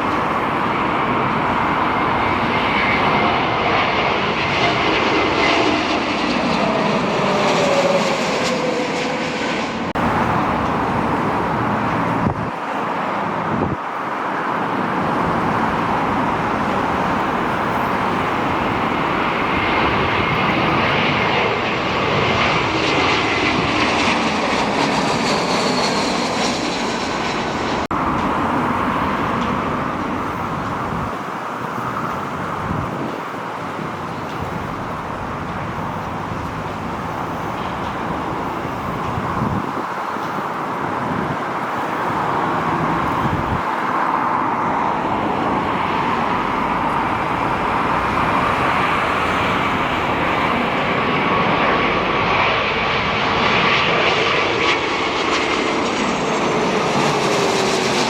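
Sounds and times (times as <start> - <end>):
jet engines rushing: 0.0 - 58.0.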